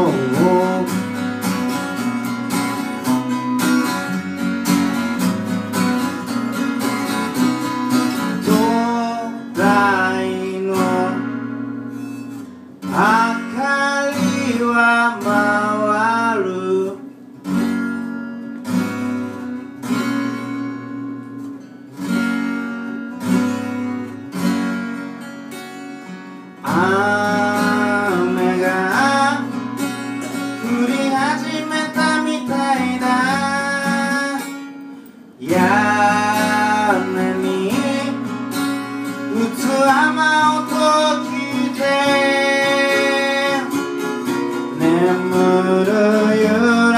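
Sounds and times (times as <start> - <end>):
person singing: 0.0 - 1.0, 8.4 - 11.3, 26.6 - 29.6, 30.6 - 34.6, 35.4 - 38.3, 39.2 - 43.9, 44.7 - 46.9
strummed acoustic guitar: 0.0 - 46.9.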